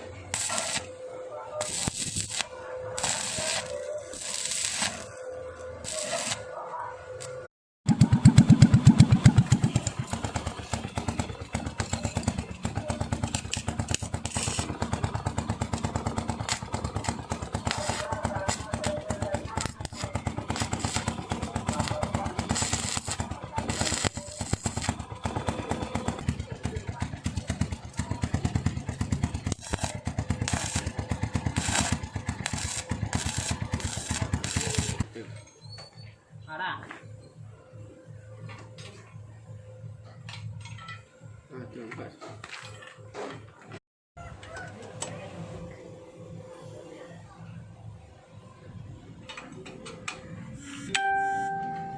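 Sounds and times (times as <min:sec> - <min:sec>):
small motorcycle engine idling: 0:07.9 - 0:35.0.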